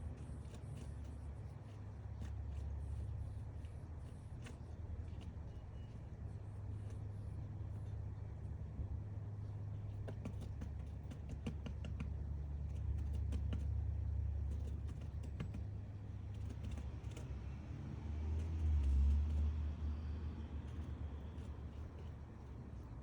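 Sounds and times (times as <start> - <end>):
woodpecker tapping wood: 9.7 - 23.0.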